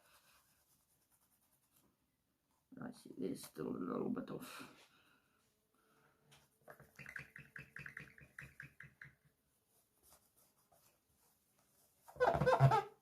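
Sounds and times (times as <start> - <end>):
cloth squeaking on glass: 12.1 - 13.0.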